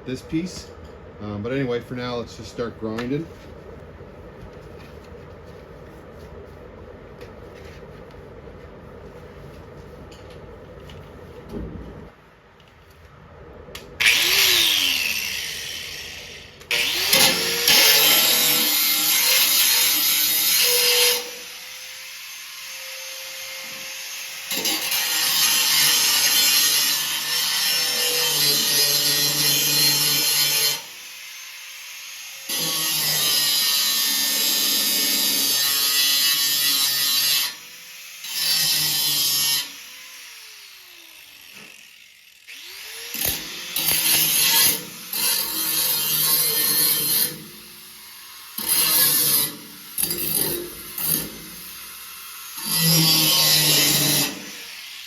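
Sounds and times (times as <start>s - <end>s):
power grinder grinding steel: 14.0s - 55.0s.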